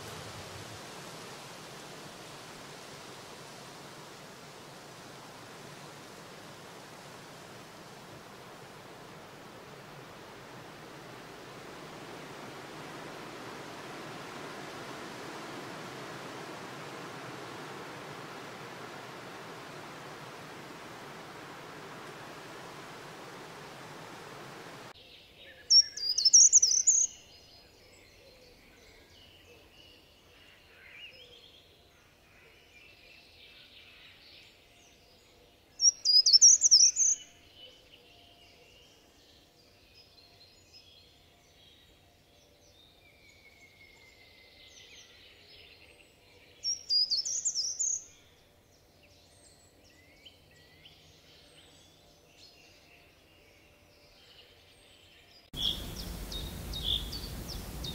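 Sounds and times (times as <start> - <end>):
steady hiss: 0.0 - 25.0, 55.6 - 57.9
faint bird chirps: 17.6 - 27.6, 35.8 - 39.1, 46.4 - 48.3, 55.5 - 57.9.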